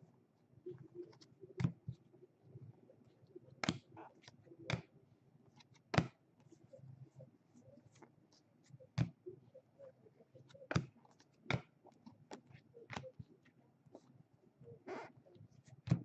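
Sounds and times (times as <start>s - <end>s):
cards clicking and tapping: 3.6s - 3.8s, 4.7s - 4.9s, 5.6s - 6.2s, 10.7s - 13.1s.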